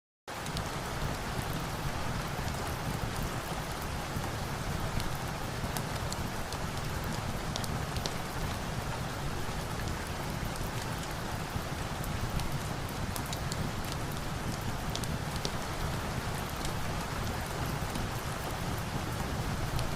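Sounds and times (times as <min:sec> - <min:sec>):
rain falling: 0:00.3 - 0:19.9.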